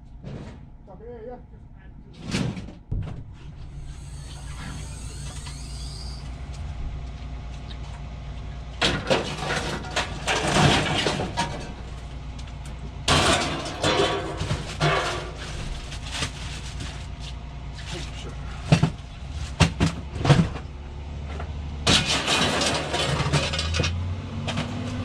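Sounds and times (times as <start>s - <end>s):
vehicle engine idling: 3.4s - 21.9s
harsh clattering noise: 8.8s - 12.1s, 13.1s - 17.1s, 21.8s - 24.8s.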